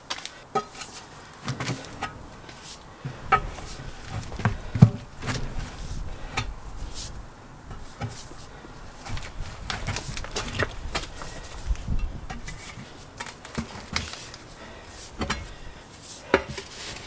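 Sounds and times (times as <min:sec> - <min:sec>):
tyre bars knocking on wheel rim: 0:00.5 - 0:12.8.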